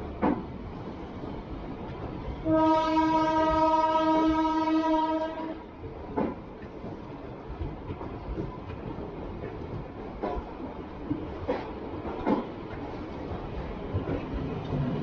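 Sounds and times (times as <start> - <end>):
moving train running noise: 0.0 - 15.0
locomotive horn blast: 2.4 - 5.6.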